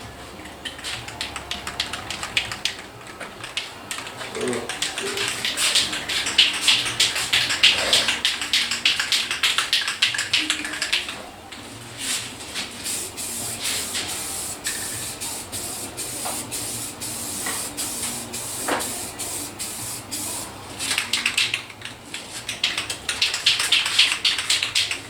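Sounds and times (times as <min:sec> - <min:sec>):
welder crackling and hissing: 0:12.0 - 0:21.0.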